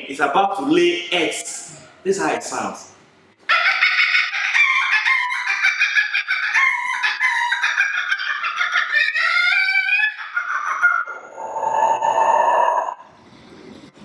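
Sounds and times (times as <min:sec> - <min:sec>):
man imitating hen cackling: 0:03.5 - 0:13.0.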